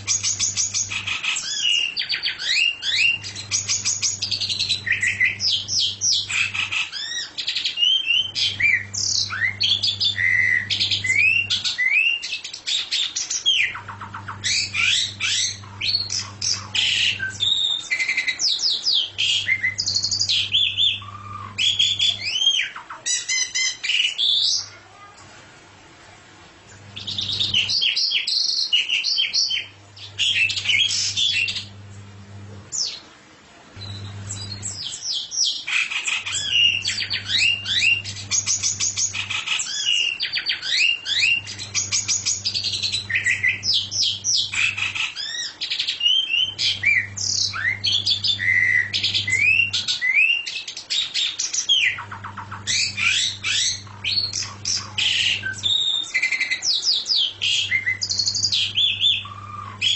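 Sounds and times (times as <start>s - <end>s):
songbird chattering song: 0.0s - 24.7s, 33.8s - 59.9s
low steady hum: 2.4s - 6.9s, 7.9s - 11.8s, 13.7s - 22.6s, 25.2s - 27.8s, 29.4s - 35.0s, 36.4s - 39.5s, 41.0s - 45.0s, 46.3s - 50.0s, 52.0s - 56.1s, 57.0s - 59.9s.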